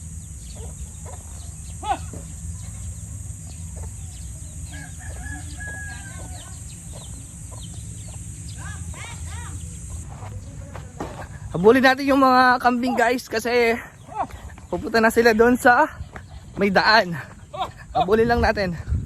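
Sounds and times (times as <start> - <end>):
steady low rumble: 0.0 - 19.0
chickens clucking: 0.2 - 11.4.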